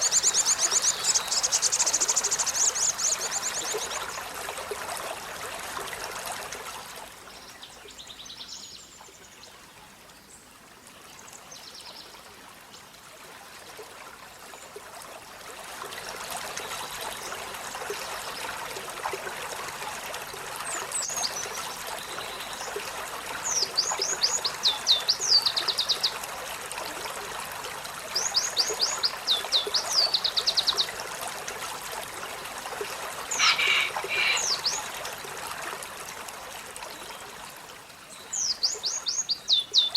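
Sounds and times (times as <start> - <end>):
trickle of running water: 0.0 - 39.9
sunbird singing: 33.3 - 34.9.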